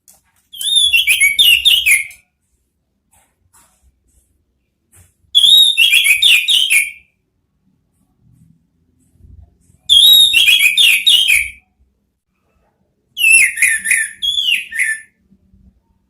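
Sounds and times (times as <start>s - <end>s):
thrush singing whistled notes: 0.6s - 2.2s, 5.4s - 7.1s, 9.9s - 11.6s, 13.2s - 15.2s.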